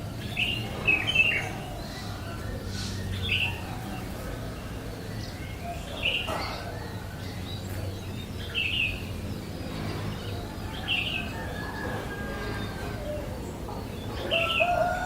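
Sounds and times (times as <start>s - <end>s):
bird chirping: 0.0s - 11.5s.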